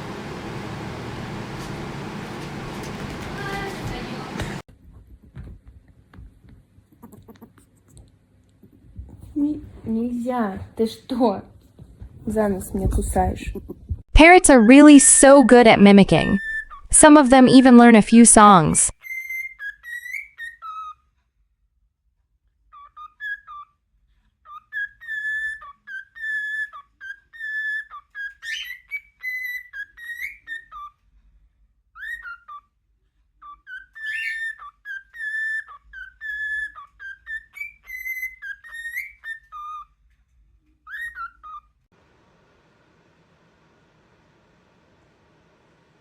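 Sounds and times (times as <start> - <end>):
parrot whistling a tune: 16.3 - 16.9, 19.0 - 21.0, 22.7 - 23.7, 24.5 - 31.0, 32.0 - 32.7, 33.4 - 40.0, 40.8 - 41.7
faint steady hiss: 42.0 - 46.0.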